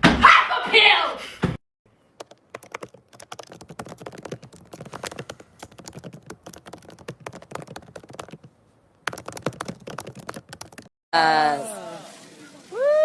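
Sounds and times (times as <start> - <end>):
rapid irregular clicking and tapping: 2.2 - 10.9.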